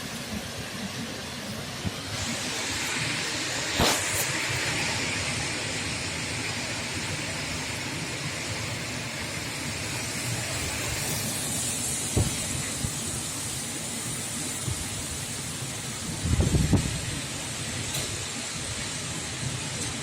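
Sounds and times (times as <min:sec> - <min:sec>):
wind buffeting microphone: 0:16.1 - 0:17.1.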